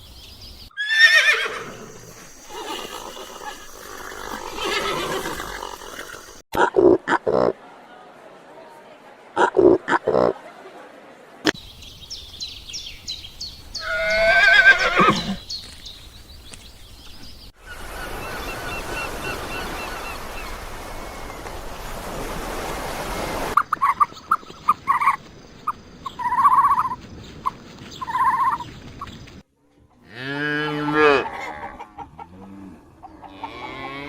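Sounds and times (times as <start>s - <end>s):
horse whinnying: 0.8s - 1.9s, 2.5s - 6.4s, 13.8s - 15.4s.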